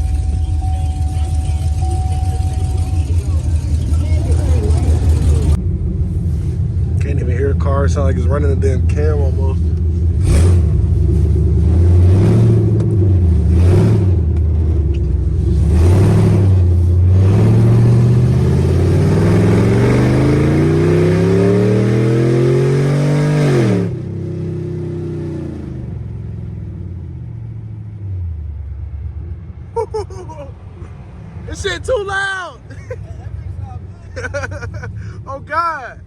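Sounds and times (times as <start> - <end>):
car exhaust revving: 0.0 - 28.4.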